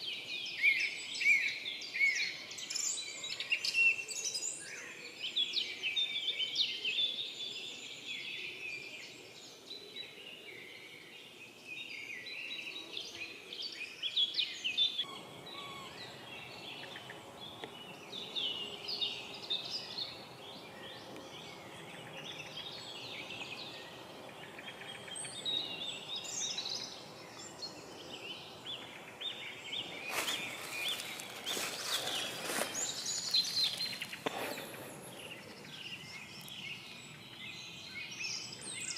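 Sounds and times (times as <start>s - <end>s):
small birds chirping and trilling: 0.0s - 38.9s
sharp crackles: 30.1s - 34.9s.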